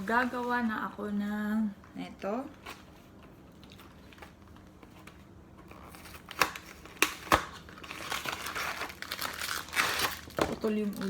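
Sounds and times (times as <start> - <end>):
wrapper crinkling and rustling: 2.4 - 11.0
packaging snaps: 5.6 - 11.0.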